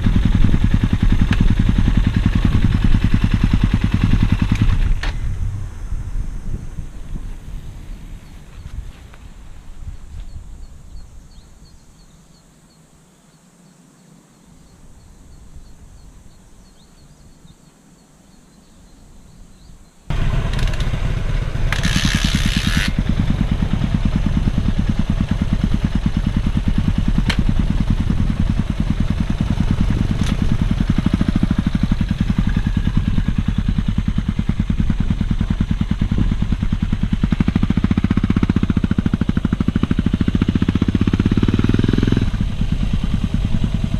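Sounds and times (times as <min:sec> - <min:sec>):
motorcycle engine starting and idling: 0:00.0 - 0:10.4, 0:20.1 - 0:43.9.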